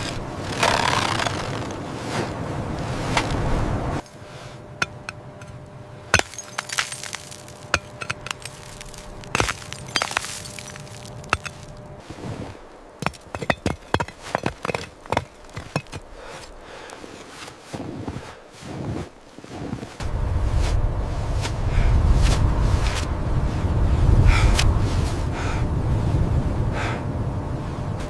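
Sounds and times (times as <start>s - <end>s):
ice cracking and clinking: 6.2s - 11.7s, 13.0s - 16.1s
loud steady rush: 20.0s - 28.0s.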